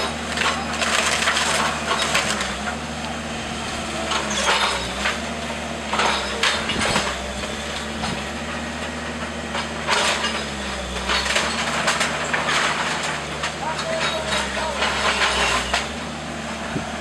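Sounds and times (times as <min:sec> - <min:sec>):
wood cracking and splintering: 0:00.0 - 0:03.2, 0:04.0 - 0:16.1
machine engine humming: 0:00.0 - 0:17.0.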